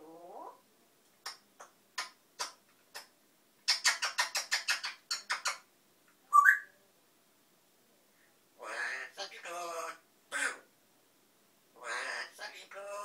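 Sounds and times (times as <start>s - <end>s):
parrot rising whistle: 6.3s - 6.7s.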